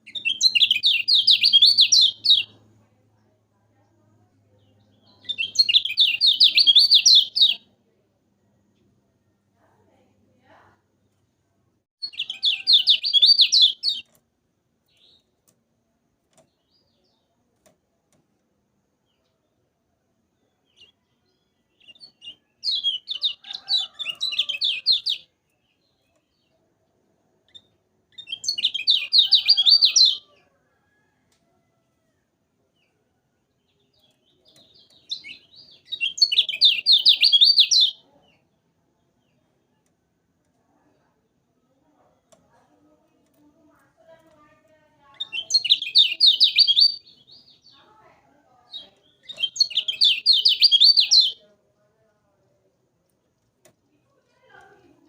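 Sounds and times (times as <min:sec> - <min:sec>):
bird chattering song: 0:00.0 - 0:02.6, 0:04.5 - 0:07.6, 0:12.0 - 0:14.1, 0:20.5 - 0:26.6, 0:27.5 - 0:30.3, 0:33.6 - 0:38.5, 0:45.2 - 0:47.8, 0:48.7 - 0:51.4.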